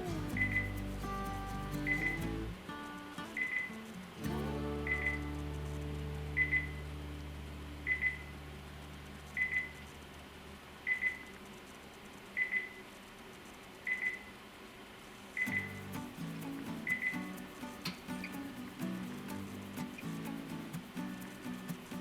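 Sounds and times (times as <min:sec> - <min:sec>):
low hum: 0:04.2 - 0:11.0.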